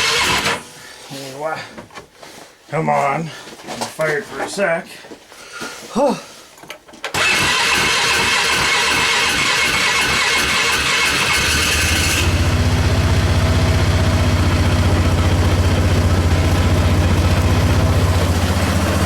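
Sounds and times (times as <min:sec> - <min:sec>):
electric starter whirring: 0:00.0 - 0:00.6, 0:07.1 - 0:19.0
quad engine idling: 0:07.2 - 0:19.0.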